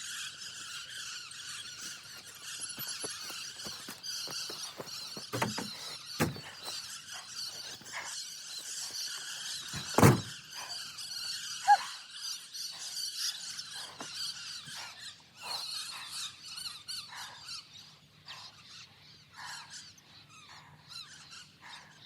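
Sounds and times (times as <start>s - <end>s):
flock of birds squealing: 0.0s - 22.0s
heavy thud: 4.7s - 6.7s, 9.8s - 10.3s.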